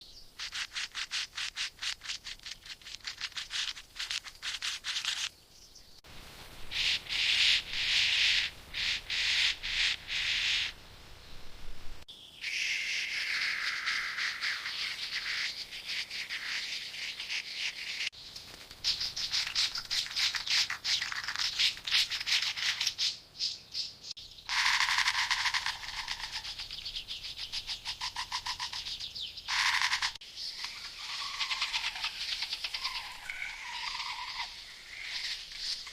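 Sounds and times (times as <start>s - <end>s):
birds chirping: 5.0s - 6.0s, 6.7s - 35.9s
rhythmic scraping strokes: 24.5s - 26.8s.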